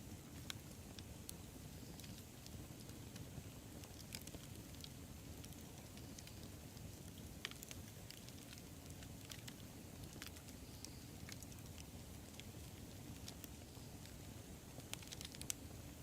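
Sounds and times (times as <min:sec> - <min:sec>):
campfire flames rushing: 0:00.0 - 0:16.0
fire crackling and popping: 0:00.0 - 0:16.0.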